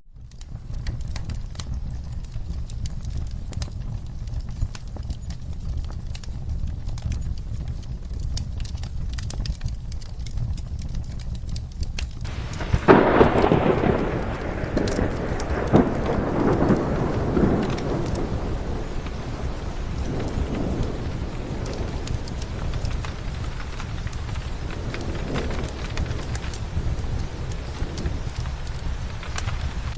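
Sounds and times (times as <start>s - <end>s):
steady rain: 0.1s - 29.9s
thunderclap: 12.2s - 29.9s.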